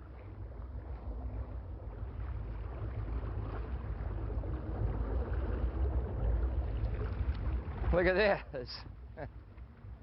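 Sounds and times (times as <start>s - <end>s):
boat engine rumble: 0.0s - 10.0s.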